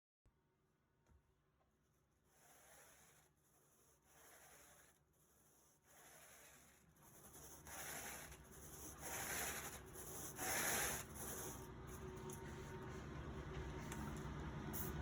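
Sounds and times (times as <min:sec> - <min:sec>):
carpet rake rubbing carpet: 0:02.3 - 0:11.6.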